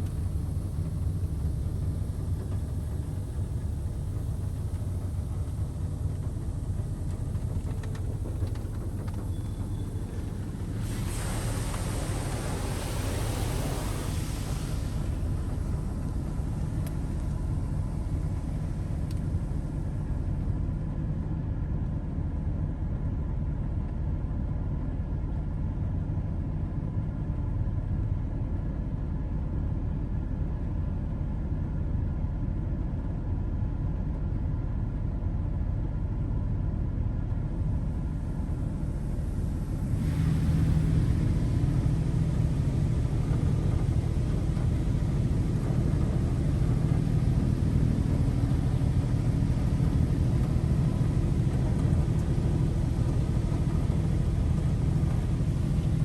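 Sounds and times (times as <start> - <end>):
car wash rumble and hum: 0.0 - 56.0
water spray hissing on car: 7.0 - 17.1, 39.6 - 56.0.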